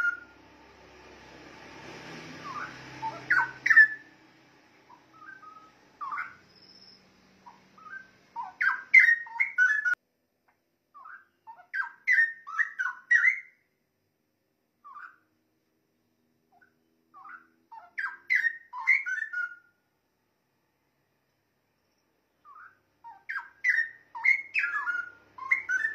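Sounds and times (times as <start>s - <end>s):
bird singing whistled notes: 0.0s - 0.4s, 2.4s - 4.1s, 4.9s - 10.0s, 10.9s - 13.7s, 14.8s - 15.2s, 16.6s - 19.7s, 21.8s - 25.9s.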